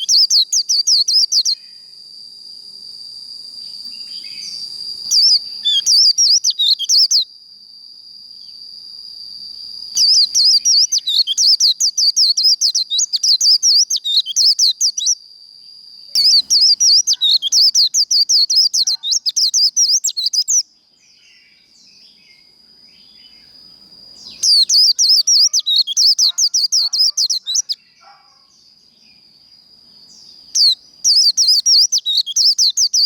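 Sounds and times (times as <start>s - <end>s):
bird twittering song: 0.0s - 1.9s, 3.7s - 7.3s, 9.9s - 15.2s, 16.1s - 33.0s
steady high whistle-like tone: 0.0s - 15.2s, 16.0s - 20.5s.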